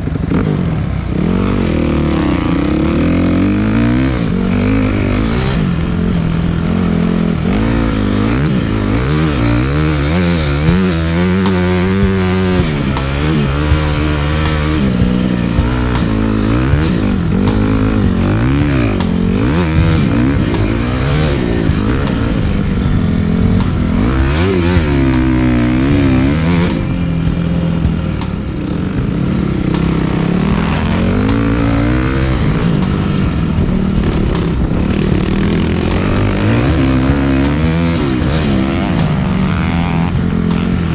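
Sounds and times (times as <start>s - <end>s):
dirt bike engine revving: 0.0s - 40.9s
background music with steady beat: 10.6s - 40.9s.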